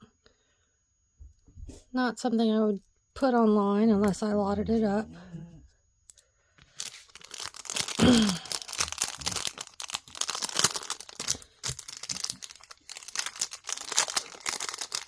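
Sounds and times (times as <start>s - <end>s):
plastic bags crinkling and tearing: 6.7s - 15.0s.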